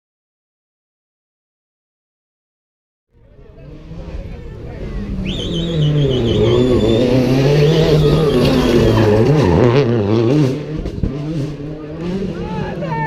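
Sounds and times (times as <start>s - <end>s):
rally car engine revving: 3.2s - 13.0s
high wavering squeal: 5.3s - 9.9s.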